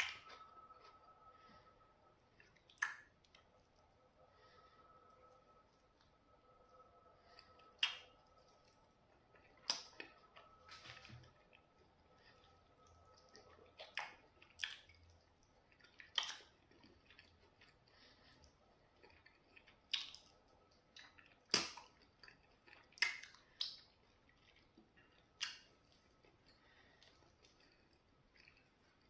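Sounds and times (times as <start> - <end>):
man chewing food: 0.0 - 29.0
wet mouth smacks: 2.7 - 3.1.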